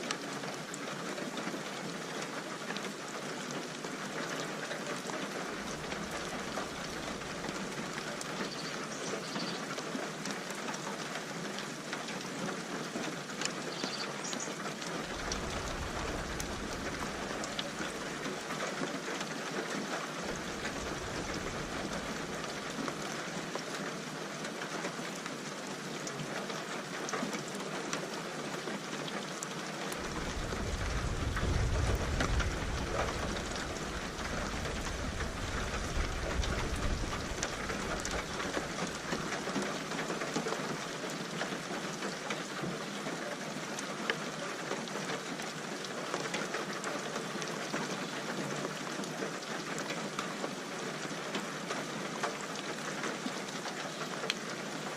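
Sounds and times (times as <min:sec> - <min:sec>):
steady rain falling: 0:00.0 - 0:54.9
low roll of thunder: 0:15.0 - 0:18.6, 0:20.3 - 0:22.4, 0:30.0 - 0:39.3.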